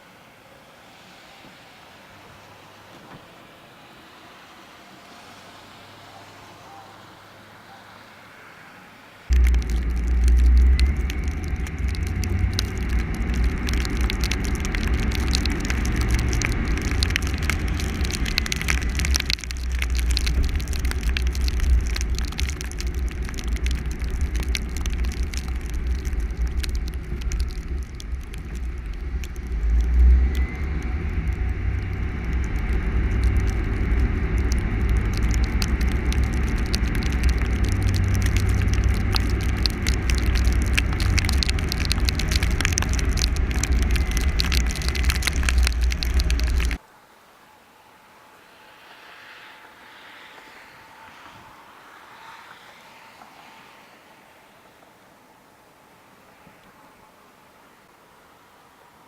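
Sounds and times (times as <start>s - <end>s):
car rumbling on icy road: 1.0s - 46.8s
faint crackling ticks: 9.3s - 46.8s.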